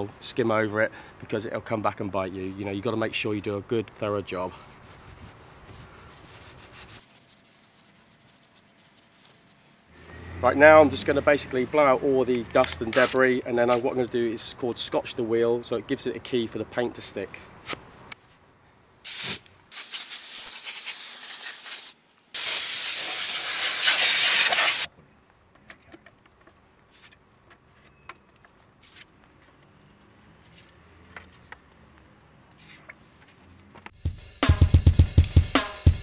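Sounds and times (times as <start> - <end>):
air blow gun hissing: 19.1 - 24.9
music with drum beat: 34.0 - 36.0.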